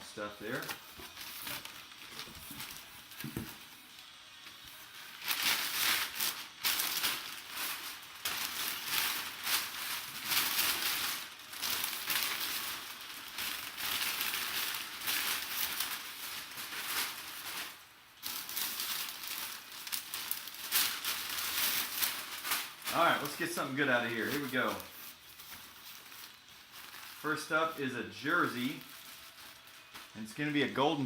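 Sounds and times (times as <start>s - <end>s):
packing material crinkling: 0.0s - 31.0s.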